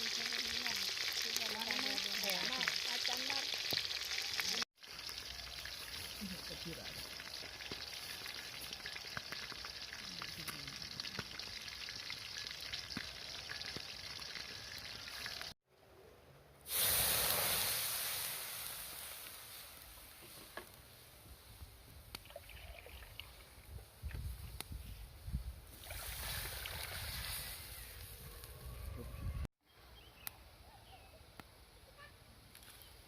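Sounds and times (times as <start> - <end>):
food sizzling in hot oil: 0.0 - 15.6, 16.7 - 20.0.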